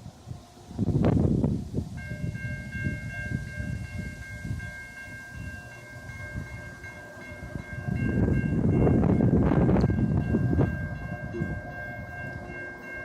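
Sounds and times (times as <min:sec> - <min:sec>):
freight train rumbling and clattering: 0:00.8 - 0:13.0
locomotive horn: 0:05.3 - 0:13.0.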